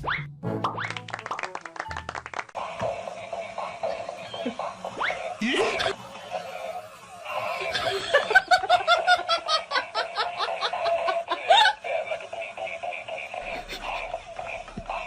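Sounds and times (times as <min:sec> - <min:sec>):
person laughing: 0:03.0 - 0:15.0.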